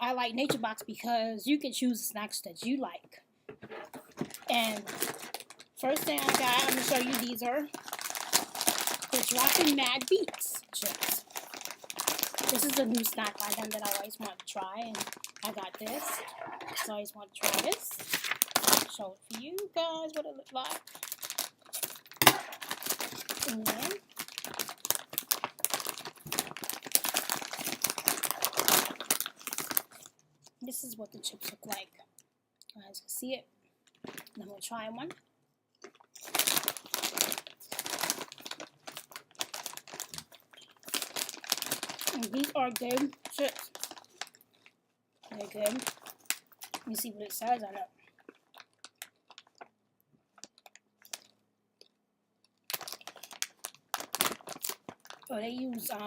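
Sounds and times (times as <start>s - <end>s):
chip bag crinkling: 3.7s - 30.6s, 35.8s - 51.9s, 52.5s - 56.0s.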